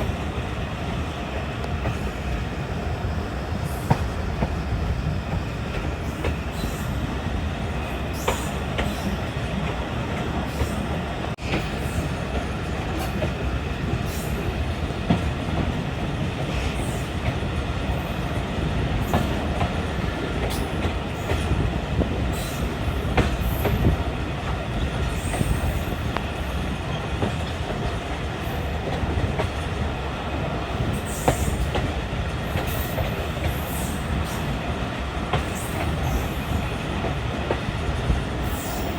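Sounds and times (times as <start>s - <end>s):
train wheels rumbling on track: 0.0s - 38.9s.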